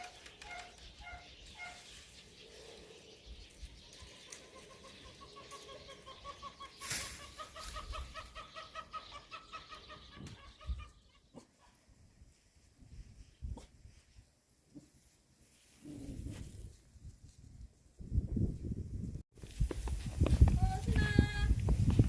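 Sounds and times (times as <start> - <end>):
bird calling with trill: 0.0 - 2.7, 3.6 - 11.3.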